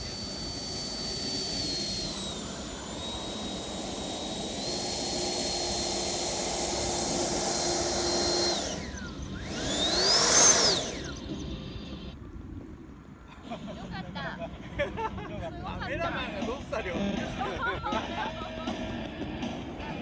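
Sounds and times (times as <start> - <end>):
model jet fan whining: 0.0 - 12.2.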